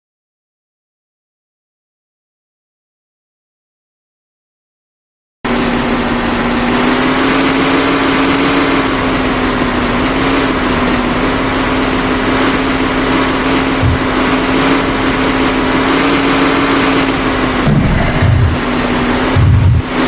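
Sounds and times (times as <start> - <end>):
engine humming: 5.5 - 20.0.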